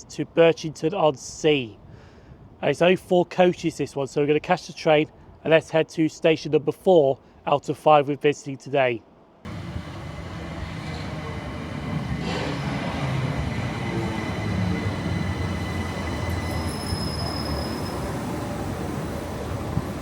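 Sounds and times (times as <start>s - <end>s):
train knock: 9.5s - 17.8s
train rumbling on rails: 9.5s - 20.0s
faint high whining tones: 12.9s - 20.0s
thin high squeal: 14.4s - 18.2s.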